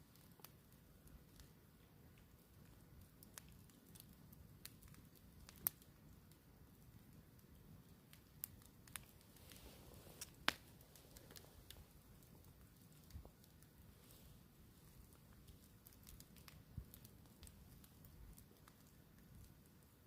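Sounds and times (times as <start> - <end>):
campfire crackling: 0.0 - 20.0
sharp fire pops: 8.5 - 11.8.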